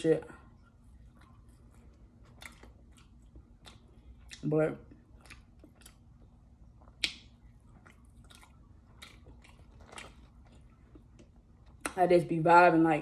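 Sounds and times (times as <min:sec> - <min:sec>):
person chewing fries: 0:00.5 - 0:12.0
wet mouth clicks and smacks: 0:05.2 - 0:10.1.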